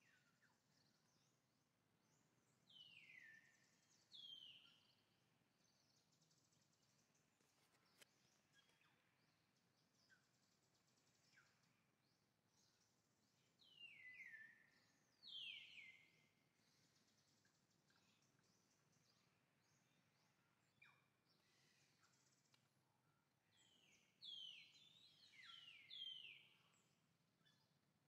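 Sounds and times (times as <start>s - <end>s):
faint click: 7.4s - 8.9s, 22.3s - 22.7s.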